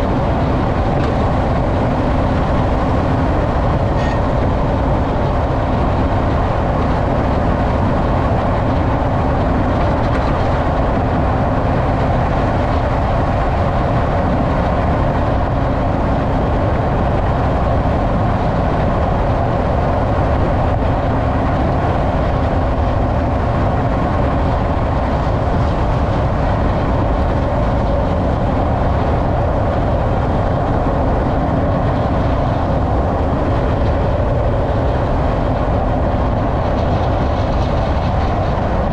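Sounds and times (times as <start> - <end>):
pickup truck driving rumble: 0.0 - 38.9
road noise: 0.0 - 38.9.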